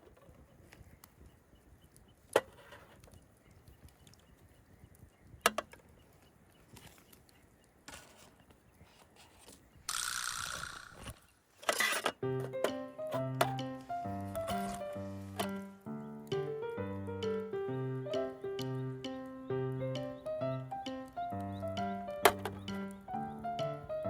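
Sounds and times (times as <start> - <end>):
wood fire crackling: 12.2 - 24.0.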